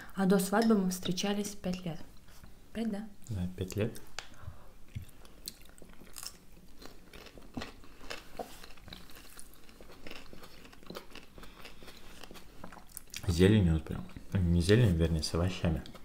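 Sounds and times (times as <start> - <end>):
chewing and crunching: 4.9 - 14.4.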